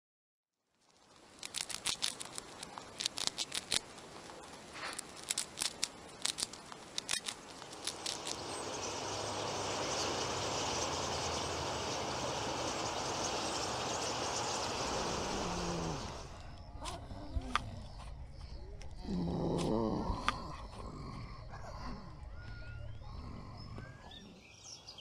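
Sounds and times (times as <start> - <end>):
hamster nibbling clicks: 1.4 - 8.4
flock of small birds chattering: 7.0 - 25.0.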